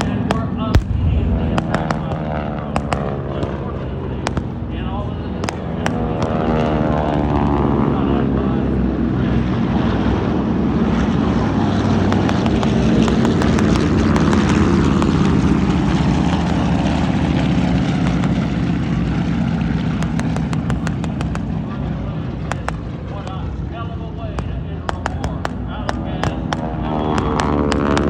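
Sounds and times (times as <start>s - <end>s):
propeller airplane flying past: 0.0s - 24.8s, 25.5s - 28.0s.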